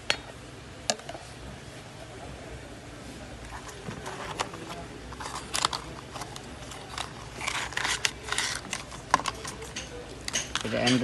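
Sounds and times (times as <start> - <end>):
phone cables being handled: 3.4 - 10.7.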